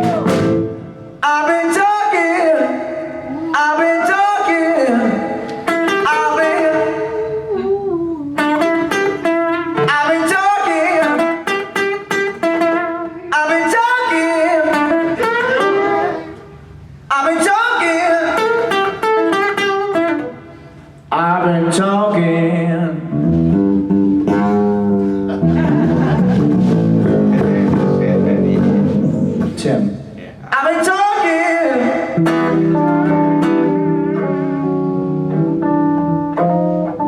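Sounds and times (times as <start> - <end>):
guitar: 0.0 - 37.0
person singing: 1.2 - 8.8, 9.8 - 11.5, 13.0 - 16.5.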